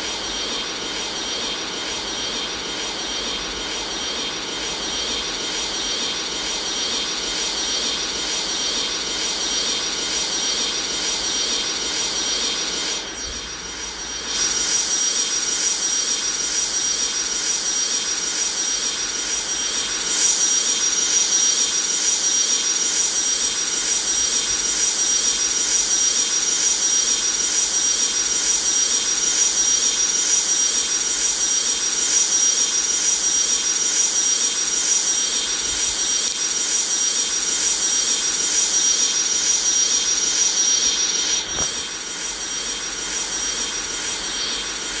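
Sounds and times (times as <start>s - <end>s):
jet engines running: 0.0s - 45.0s
click: 36.1s - 36.5s.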